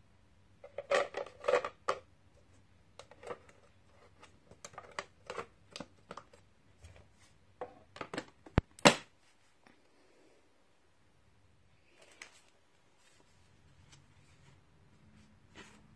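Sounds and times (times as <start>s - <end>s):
hard objects clicking and rattling: 0.7s - 2.1s.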